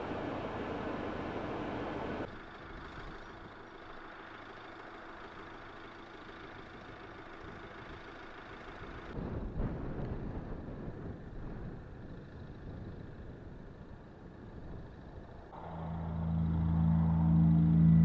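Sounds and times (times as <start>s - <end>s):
van engine humming: 13.8s - 18.0s.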